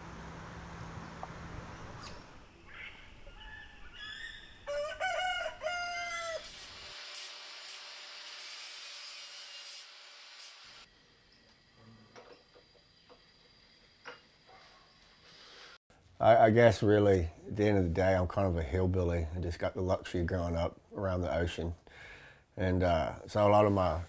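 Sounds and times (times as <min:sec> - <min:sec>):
rooster crowing: 0:03.4 - 0:06.5.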